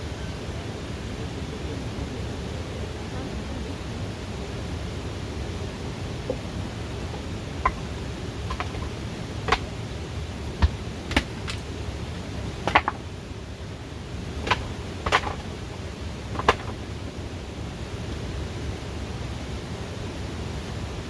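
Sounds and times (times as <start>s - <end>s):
background hiss: 0.0s - 21.0s
sharp knocks and taps: 7.1s - 7.9s, 8.5s - 8.9s, 9.5s - 9.7s, 10.6s - 11.6s, 12.7s - 13.0s, 14.4s - 15.5s, 16.4s - 16.8s.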